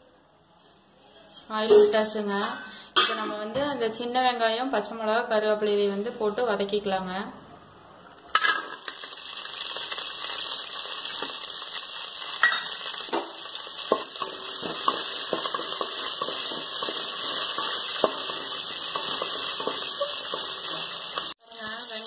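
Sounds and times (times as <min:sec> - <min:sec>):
food sizzling in hot oil: 0:08.3 - 0:22.0.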